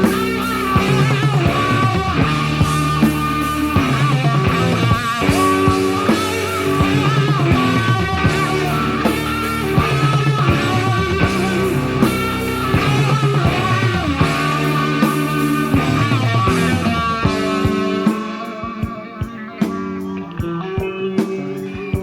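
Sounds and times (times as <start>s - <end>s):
bass guitar: 0.0s - 22.0s
electric guitar lines: 0.0s - 22.0s
steady drum beat: 0.0s - 22.0s.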